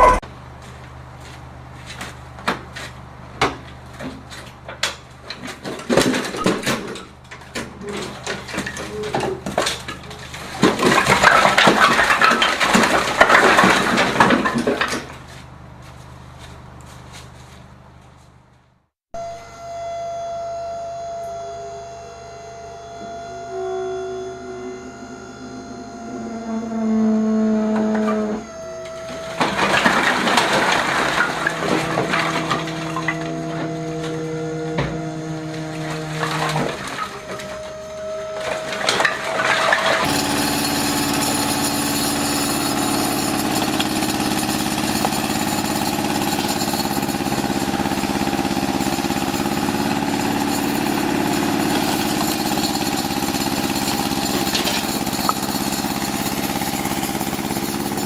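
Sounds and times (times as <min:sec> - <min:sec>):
machinery engines running: 0:00.0 - 0:58.0.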